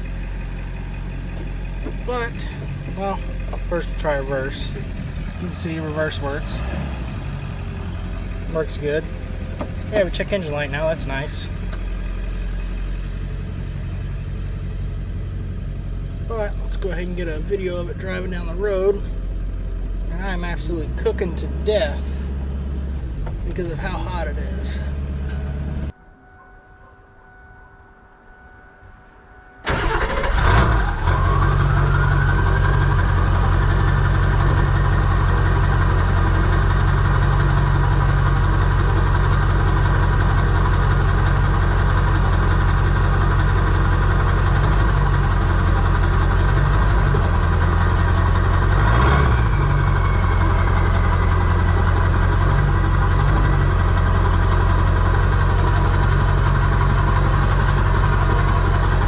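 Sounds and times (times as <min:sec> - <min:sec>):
diesel engine clattering: 0:00.0 - 0:26.0, 0:29.6 - 0:59.0
engine whine: 0:00.0 - 0:59.0.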